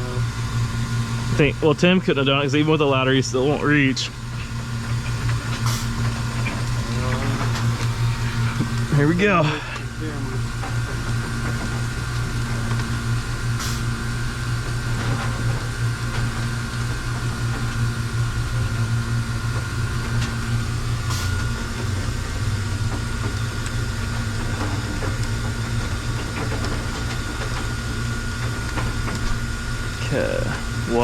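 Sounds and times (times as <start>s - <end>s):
machinery humming: 0.0s - 31.0s.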